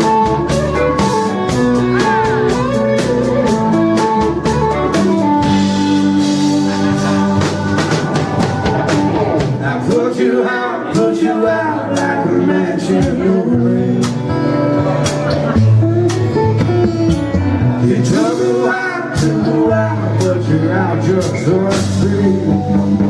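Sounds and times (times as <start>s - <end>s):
live country-rock band playing: 0.0s - 23.0s.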